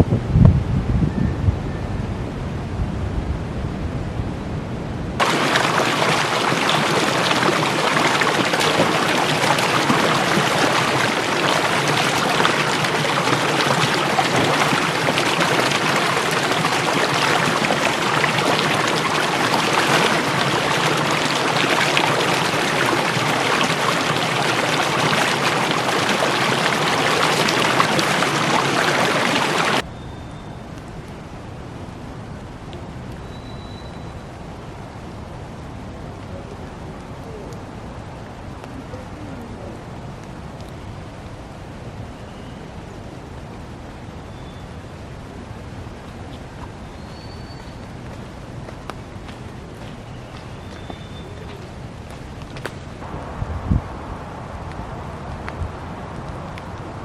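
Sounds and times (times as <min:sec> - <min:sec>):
rain and wind noise: 0:00.0 - 0:57.0
heavy rain hissing: 0:05.2 - 0:29.8, 0:51.0 - 0:57.0.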